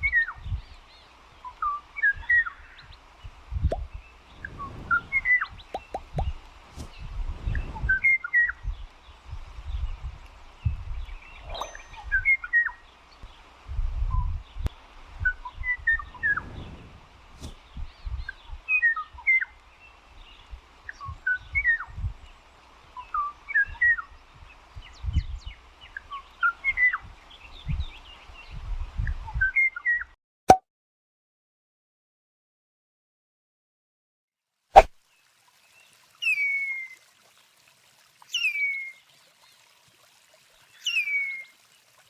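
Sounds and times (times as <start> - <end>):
songbird chirping and whistling: 1.4 - 2.9, 3.7 - 8.8, 11.2 - 12.8
low rumbling noise: 3.3 - 8.0.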